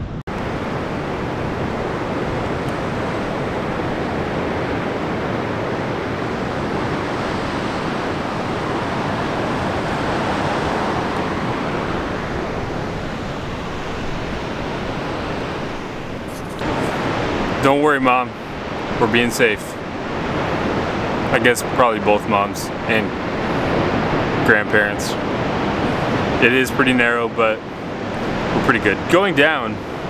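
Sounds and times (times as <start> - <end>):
wind rushing: 0.0 - 21.4, 22.6 - 26.6
wind hitting microphone: 0.0 - 21.8, 27.8 - 30.0
ocean surf: 0.0 - 30.0.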